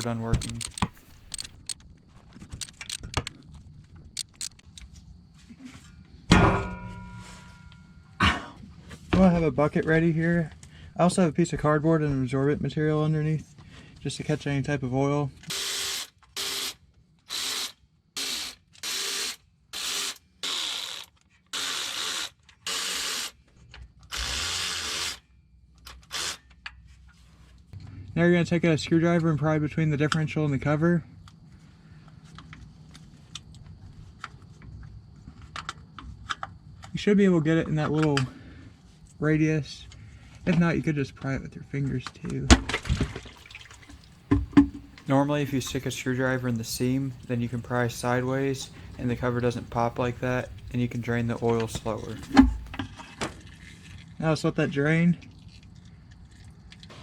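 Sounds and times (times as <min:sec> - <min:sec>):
power tool spinning bolts: 0:00.0 - 0:01.8, 0:17.3 - 0:23.3
loud ringing metallic clank: 0:06.3 - 0:08.1
metal hand tools clinking: 0:43.4 - 0:52.8.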